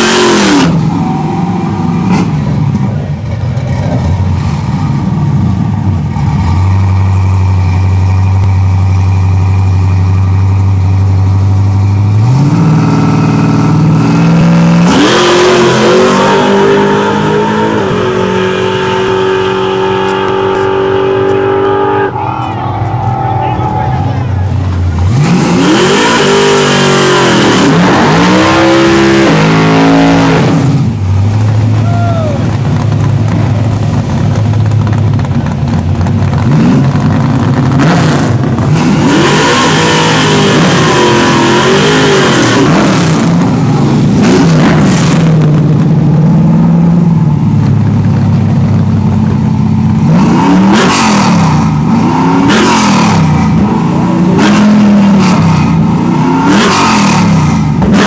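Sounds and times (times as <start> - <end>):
car engine revving hard: 0.0 - 2.6, 12.0 - 31.4, 35.2 - 47.2, 49.8 - 58.0
low engine drone: 0.0 - 56.5.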